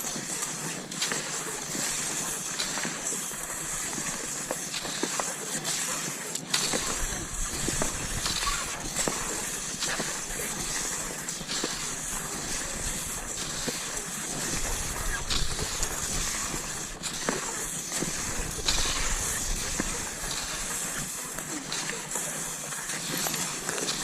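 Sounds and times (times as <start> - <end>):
skis hissing over snow: 0.0 - 24.0.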